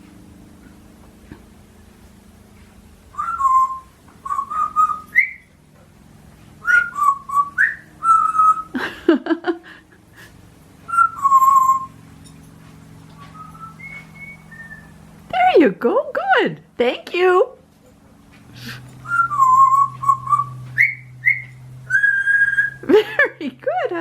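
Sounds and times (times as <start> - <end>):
parrot whistling: 3.1 - 5.5, 6.6 - 8.7, 10.9 - 12.0, 13.1 - 15.1, 19.0 - 22.8.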